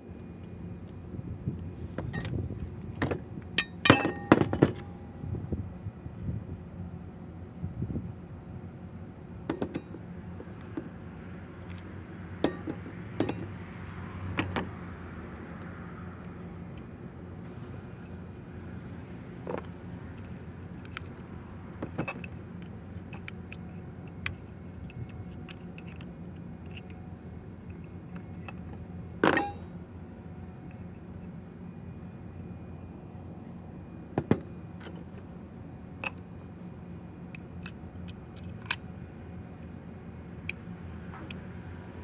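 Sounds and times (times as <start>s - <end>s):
steady low hum: 0.0s - 42.0s
tools clicking and knocking: 12.4s - 13.6s.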